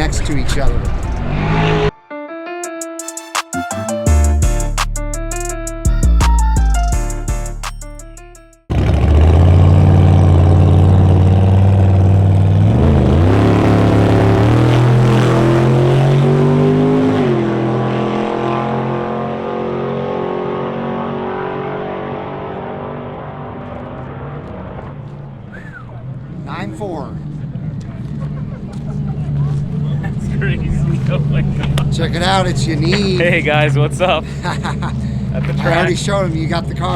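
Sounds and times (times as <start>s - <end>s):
drag racing car engine revving: 8.7s - 36.9s.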